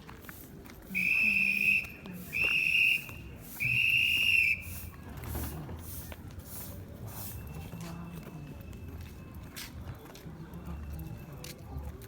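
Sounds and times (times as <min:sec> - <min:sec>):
whistle blasts: 0:01.0 - 0:04.9.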